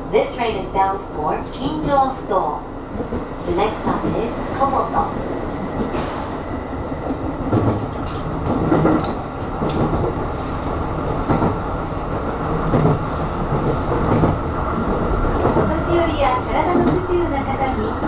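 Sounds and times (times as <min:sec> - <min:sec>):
wheels rumbling on rail: 0:00.0 - 0:18.0
wheels clicking over rail joints: 0:07.0 - 0:18.0.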